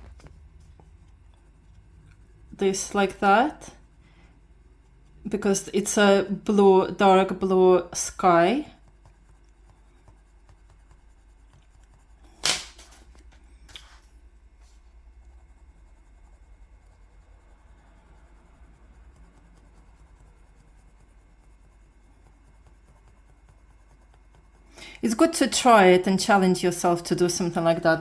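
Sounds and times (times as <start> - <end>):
low hum: 0.0 - 21.3.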